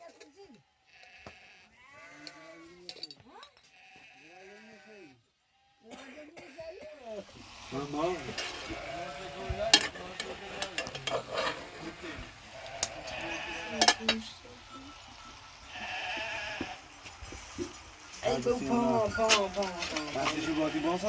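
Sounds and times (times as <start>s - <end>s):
sheep bleating: 0.7s - 3.0s, 3.6s - 5.9s, 7.8s - 14.4s, 15.7s - 16.9s, 18.3s - 21.0s
rustling stirring noise: 7.2s - 21.0s.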